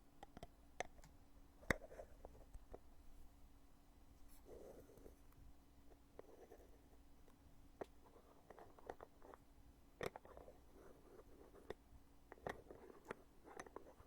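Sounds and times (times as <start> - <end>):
compact lid clicking and tapping: 10.0 - 10.5, 11.6 - 14.0.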